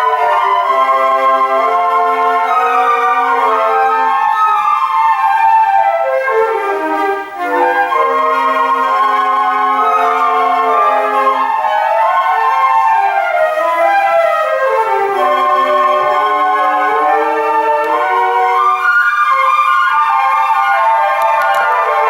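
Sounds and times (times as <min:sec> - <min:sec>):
flute ensemble playing: 0:00.0 - 0:22.0.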